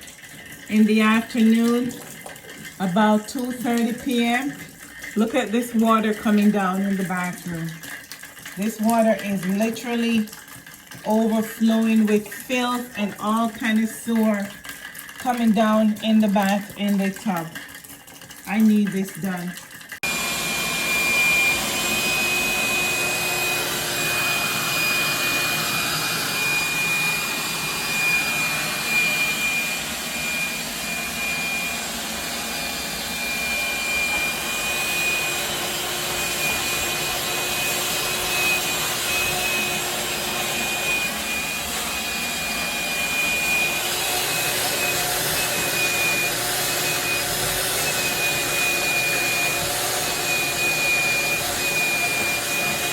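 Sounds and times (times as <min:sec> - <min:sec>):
vacuum motor whining: 0:20.0 - 0:52.9.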